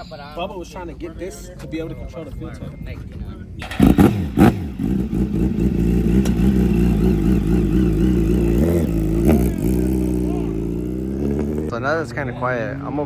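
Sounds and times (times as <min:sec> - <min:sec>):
motorcycle engine idling and revving: 0:03.6 - 0:13.0.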